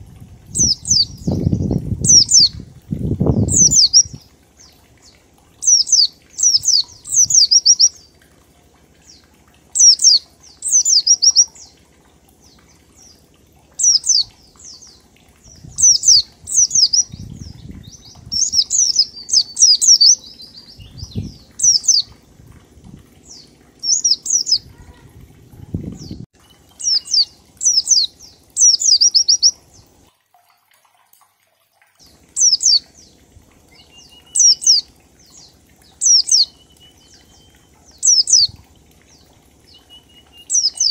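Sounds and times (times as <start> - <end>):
faint low rumbling: 0.0 - 30.1
bird singing high downward notes: 0.5 - 2.6, 3.2 - 8.1, 9.0 - 11.8, 12.4 - 22.5, 23.1 - 25.0, 25.6 - 30.0, 32.3 - 40.9.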